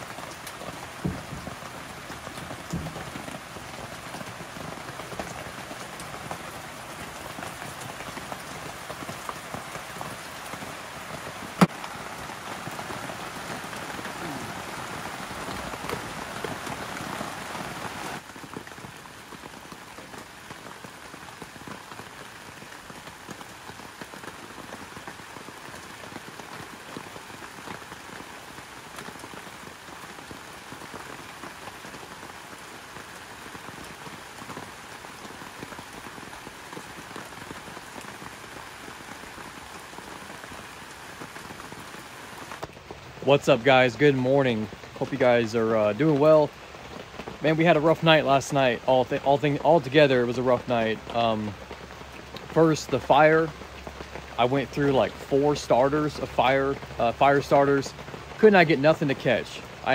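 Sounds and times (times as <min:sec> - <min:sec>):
rain pattering: 0:00.0 - 0:59.9
drops ticking: 0:00.1 - 0:10.6.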